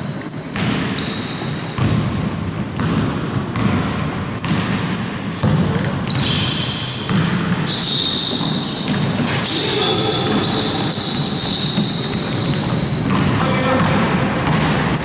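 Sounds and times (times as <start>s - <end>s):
shoe squeaks: 0.0s - 1.8s, 4.0s - 5.4s, 6.1s - 13.2s
ball bouncing on court: 0.0s - 15.0s.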